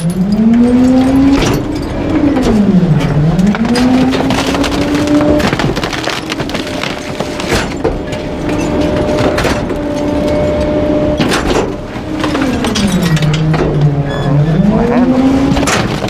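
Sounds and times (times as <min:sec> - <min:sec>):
garbage truck engine revving: 0:00.0 - 0:16.0
items being crushed: 0:02.4 - 0:14.0, 0:15.0 - 0:16.0.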